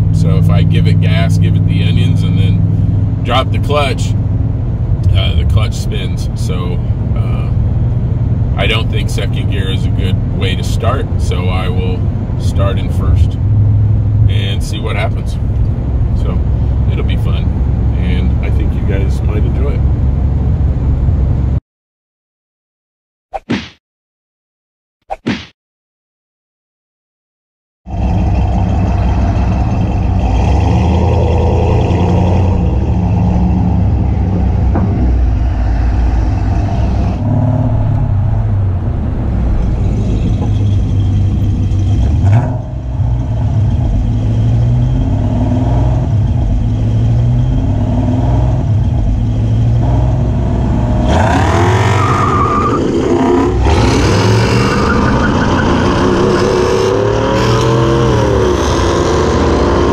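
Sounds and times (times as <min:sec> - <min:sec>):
car engine accelerating: 0:00.0 - 0:21.6, 0:27.9 - 0:59.9
road and drivetrain noise: 0:00.0 - 0:21.6, 0:27.9 - 0:59.9
rush of wind: 0:30.2 - 0:44.0.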